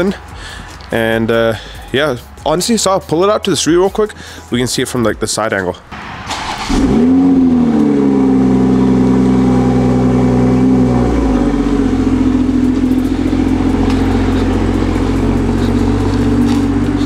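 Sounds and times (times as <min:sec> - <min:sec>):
car engine idling: 0:05.9 - 0:17.0.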